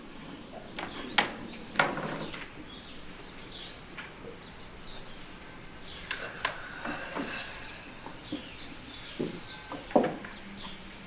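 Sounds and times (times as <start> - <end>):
small birds chirping: 0.1 - 11.0
sharp clicks: 6.0 - 7.3.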